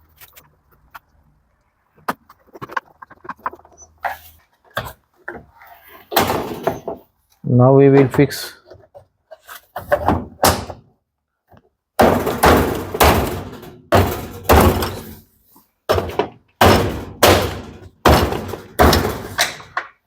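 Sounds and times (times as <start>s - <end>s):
control panel thunks and knocks: 12.0s - 15.0s, 15.9s - 19.8s.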